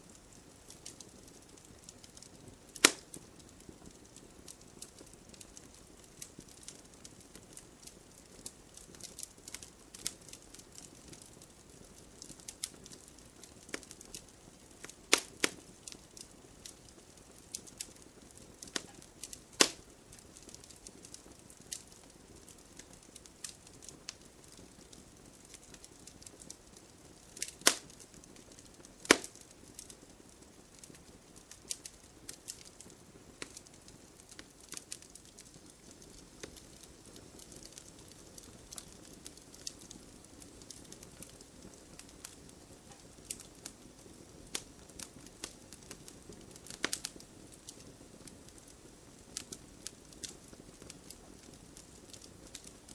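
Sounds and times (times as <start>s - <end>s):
bonfire crackling: 0.0s - 52.9s
loud sharp snaps: 29.1s - 29.3s.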